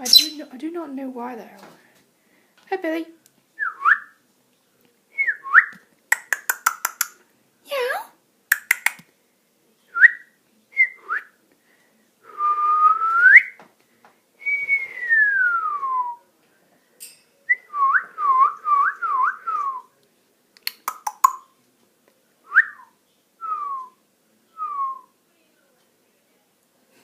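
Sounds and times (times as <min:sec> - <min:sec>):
parrot whistling: 0:00.0 - 0:00.4
parrot clicks: 0:06.1 - 0:07.2, 0:08.5 - 0:09.1, 0:20.6 - 0:21.4.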